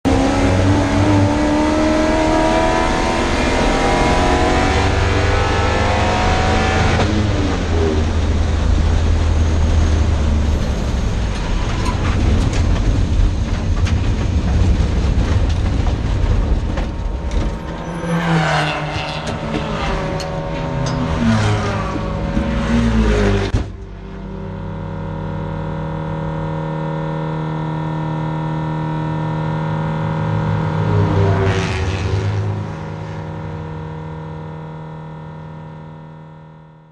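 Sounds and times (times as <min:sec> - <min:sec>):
race car engine revving: 0:00.0 - 0:09.3, 0:14.6 - 0:36.4
loud ragged engine clattering: 0:05.6 - 0:24.2.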